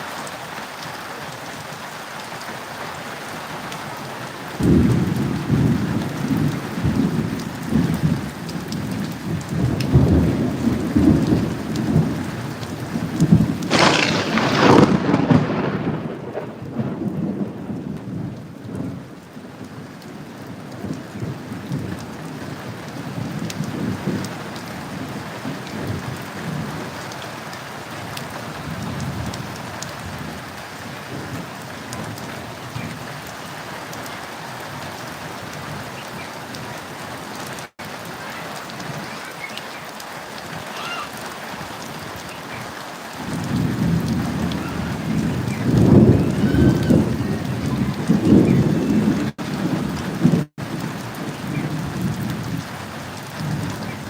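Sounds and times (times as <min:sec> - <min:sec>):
steady rain: 0:00.0 - 0:54.0
loud thunderclap: 0:04.6 - 0:19.0, 0:43.2 - 0:52.7
thunder rumbling: 0:04.6 - 0:19.1, 0:43.2 - 0:54.0.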